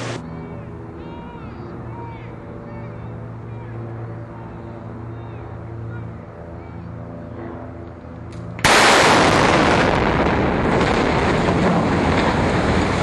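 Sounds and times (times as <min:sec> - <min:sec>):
demolition blast: 0:08.6 - 0:13.0.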